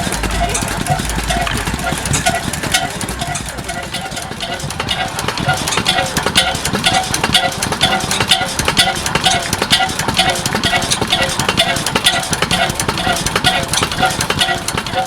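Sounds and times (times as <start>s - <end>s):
oil engine metallic clanking: 0.0s - 15.0s.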